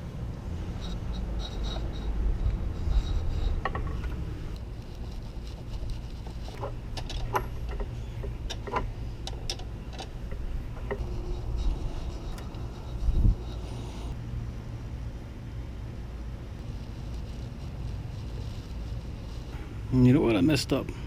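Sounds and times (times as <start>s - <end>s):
steady low rumble: 0.0s - 21.0s
light clicks and knocks of tools: 6.5s - 11.0s.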